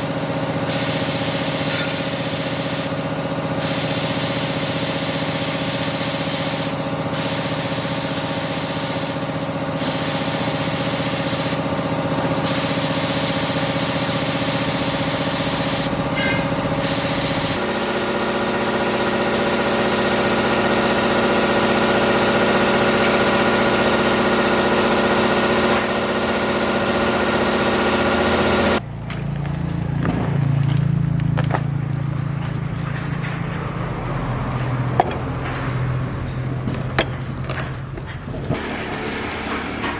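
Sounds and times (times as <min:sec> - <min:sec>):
loud hiss: 0:00.0 - 0:11.7, 0:12.4 - 0:16.1, 0:16.8 - 0:18.2
machine running: 0:00.0 - 0:29.1, 0:31.7 - 0:39.9.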